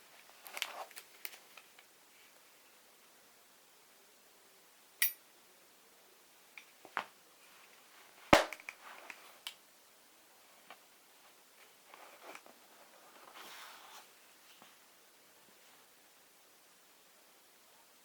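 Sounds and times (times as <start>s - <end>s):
sharp metallic click: 5.0s - 5.2s.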